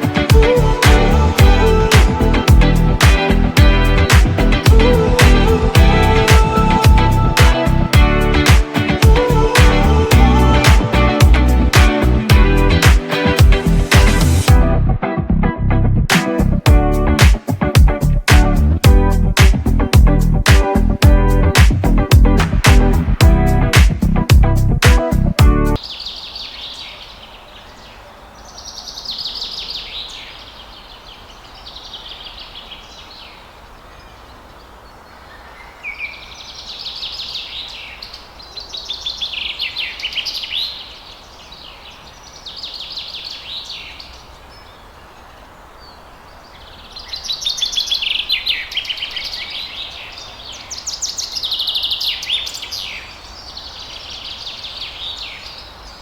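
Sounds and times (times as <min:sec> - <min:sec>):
background hiss: 0:00.0 - 0:14.5, 0:16.1 - 0:56.0
birdsong: 0:24.9 - 0:56.0.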